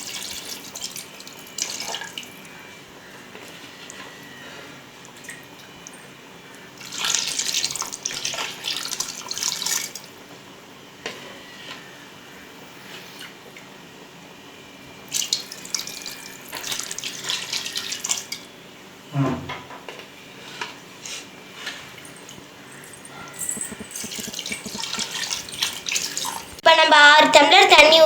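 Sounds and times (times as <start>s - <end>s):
water pouring into a pot: 0.0s - 2.3s, 6.8s - 10.1s, 15.1s - 18.4s, 23.4s - 26.6s.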